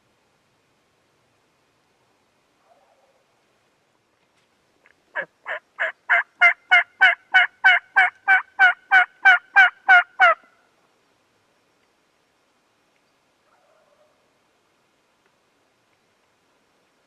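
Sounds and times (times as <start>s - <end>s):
turkey yelping: 5.2s - 10.5s.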